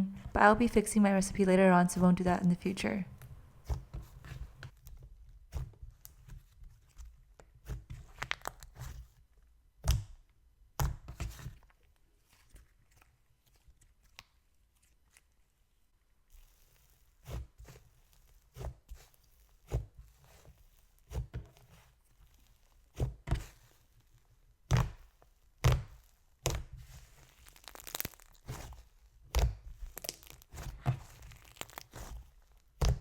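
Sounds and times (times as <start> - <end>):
faint sizzling crackle: 26.8 - 29.0, 29.7 - 32.6.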